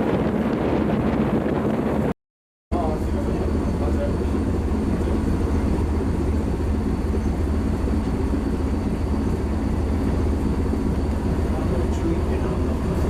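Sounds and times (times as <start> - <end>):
ship diesel engine rumbling: 2.7 - 13.0.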